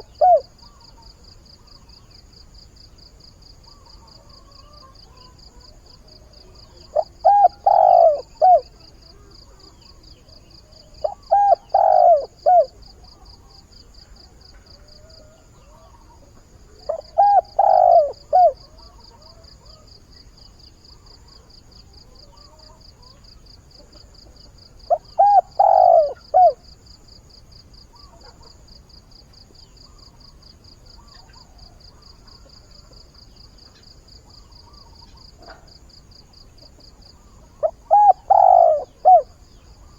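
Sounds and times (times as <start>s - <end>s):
dove cooing: 0.0s - 0.8s, 4.5s - 9.9s, 10.7s - 13.6s, 16.7s - 19.9s, 23.8s - 26.7s, 37.6s - 39.9s
faint high insect trill: 0.0s - 39.9s.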